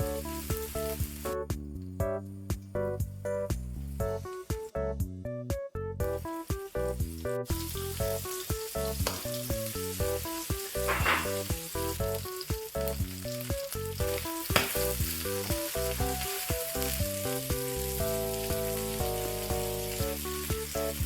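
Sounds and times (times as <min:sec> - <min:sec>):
food sizzling in oil: 0:00.0 - 0:01.4, 0:06.1 - 0:21.0
background music: 0:00.0 - 0:21.0.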